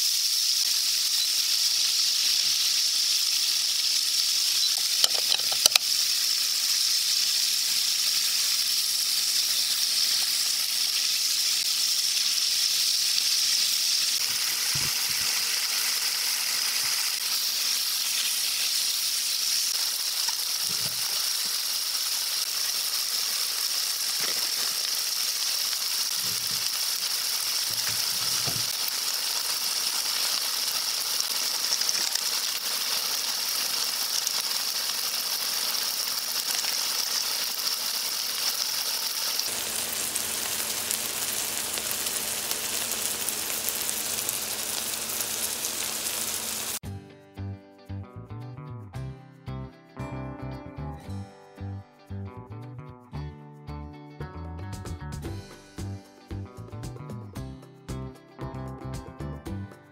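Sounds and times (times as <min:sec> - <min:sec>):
food sizzling in a frying pan: 0:00.0 - 0:46.8
chopsticks stirring: 0:04.9 - 0:05.8.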